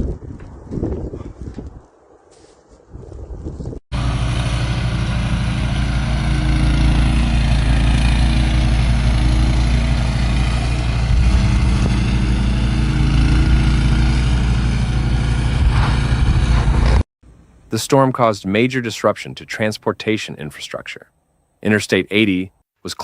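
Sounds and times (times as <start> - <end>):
engine running steadily: 4.0 - 17.7.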